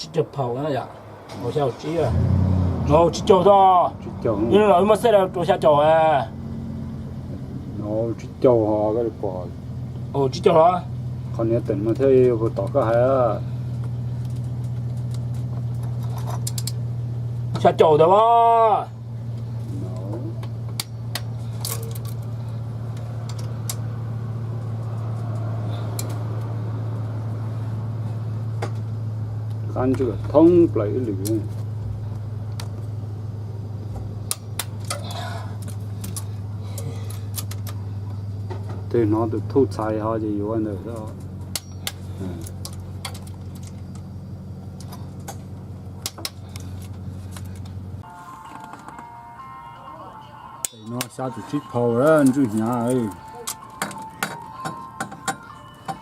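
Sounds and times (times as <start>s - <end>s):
metal tools clinking: 41.5s - 44.1s, 50.6s - 56.0s.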